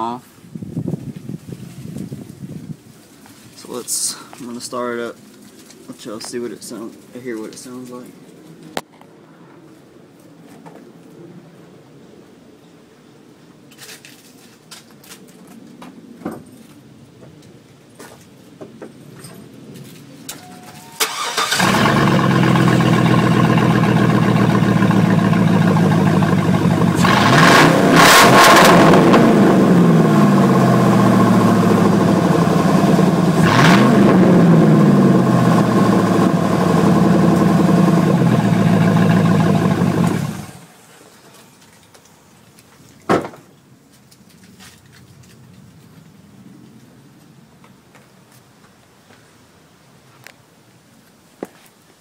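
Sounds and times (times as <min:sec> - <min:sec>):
truck engine starting and revving: 0:21.0 - 0:40.7.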